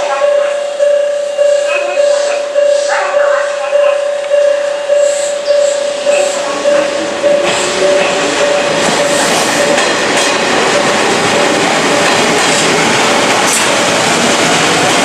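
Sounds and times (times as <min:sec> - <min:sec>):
electronic crossing warning bell: 0:00.0 - 0:12.4
train wheel clatter: 0:05.0 - 0:15.0.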